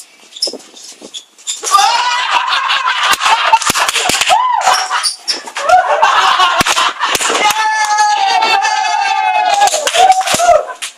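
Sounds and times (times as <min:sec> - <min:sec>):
young people shouting and shrieking: 0:01.6 - 0:03.0, 0:04.1 - 0:06.5, 0:07.1 - 0:10.9.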